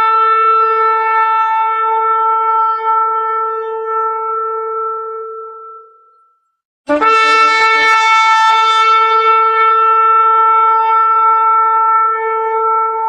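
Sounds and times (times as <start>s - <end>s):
shofar blast: 0.0s - 6.0s, 6.9s - 13.0s.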